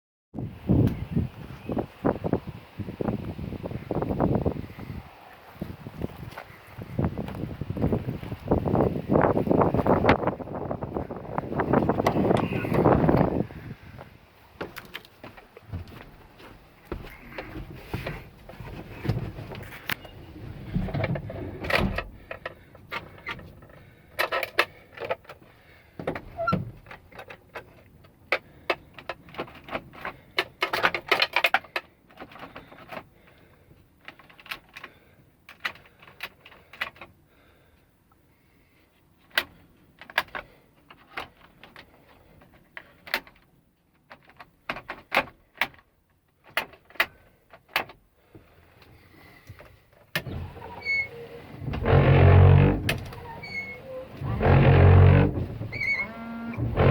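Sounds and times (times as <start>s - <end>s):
clicks and rattles of truck fittings: 16.9s - 37.5s, 39.2s - 48.1s, 48.8s - 56.9s.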